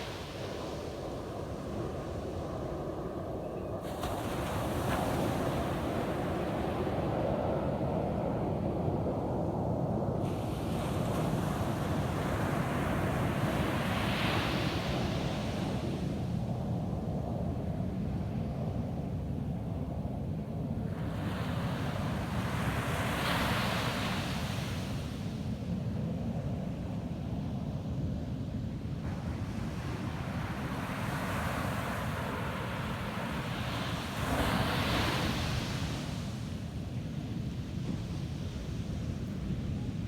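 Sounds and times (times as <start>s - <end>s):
ocean surf breaking on beach: 29.1s - 36.5s.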